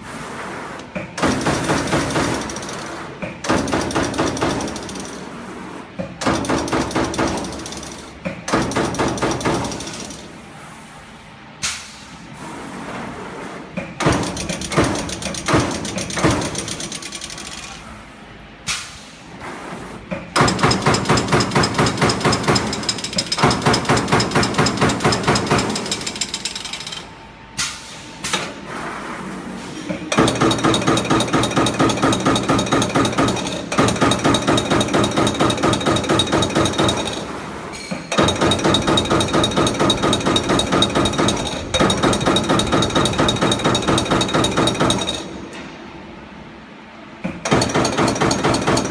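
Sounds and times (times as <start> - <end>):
punching machine striking sheet metal: 1.1 - 5.1, 6.1 - 10.2, 13.9 - 17.3, 20.3 - 27.0, 30.1 - 45.3, 47.3 - 48.9.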